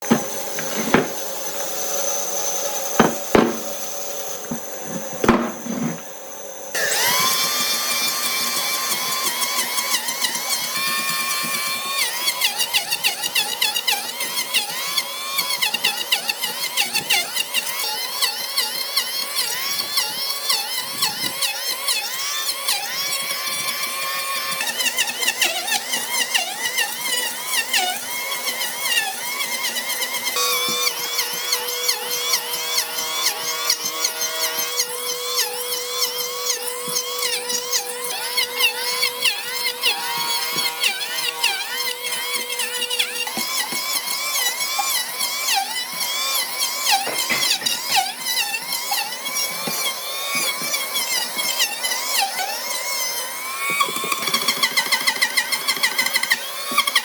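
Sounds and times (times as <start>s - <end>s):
knocks: 0.0s - 1.2s, 3.0s - 3.8s, 4.5s - 6.0s
power tool cutting wood: 0.0s - 57.0s.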